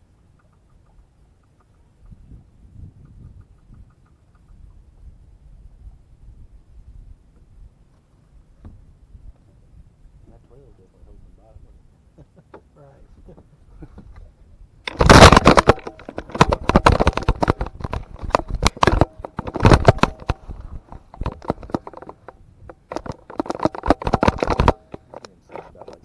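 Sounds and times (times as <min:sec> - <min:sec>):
microphone handling crackling: 0:07.4 - 0:09.6, 0:12.4 - 0:26.0.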